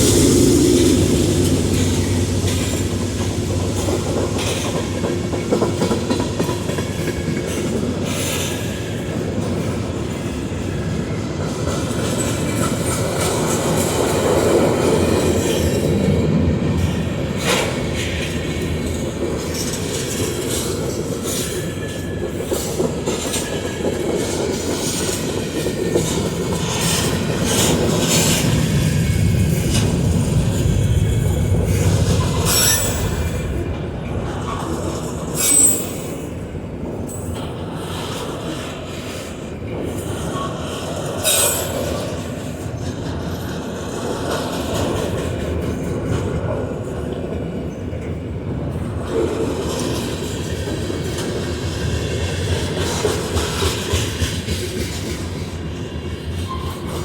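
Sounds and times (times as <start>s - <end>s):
train rolling past: 0.0s - 57.0s
wheel squeals: 35.4s - 36.2s.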